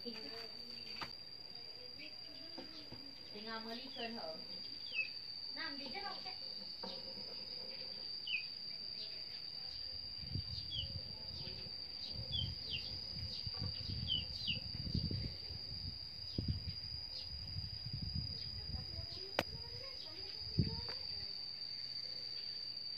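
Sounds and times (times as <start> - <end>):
high-pitched whine: 0.0 - 22.9
bird chirps: 3.8 - 5.2.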